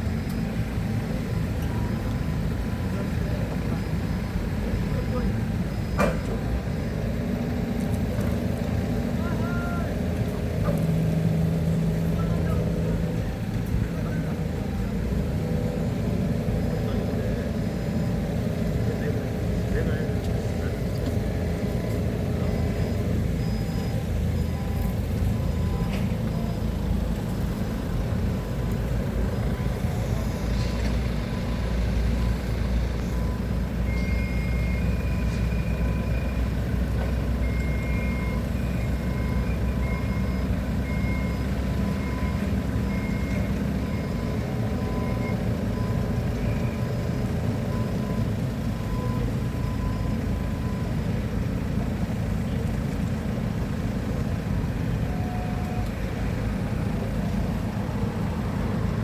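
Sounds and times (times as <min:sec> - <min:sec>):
heavy equipment engine running: 0:00.0 - 0:59.0
high beeping alarm: 0:21.3 - 0:27.0, 0:27.8 - 0:36.6.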